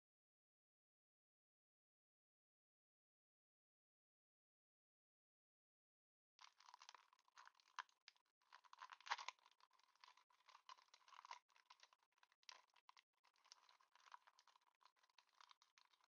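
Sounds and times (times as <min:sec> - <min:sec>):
foil wrapper crinkling and tearing: 0:08.6 - 0:16.0.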